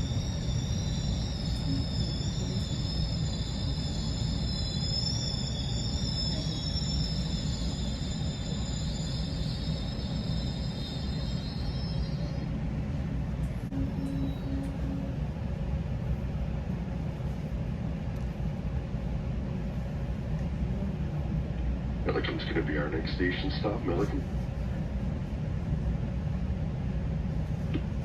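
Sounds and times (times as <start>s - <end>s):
high wavering whine: 0.0s - 16.2s
train wheels rumbling on rail: 0.0s - 28.0s.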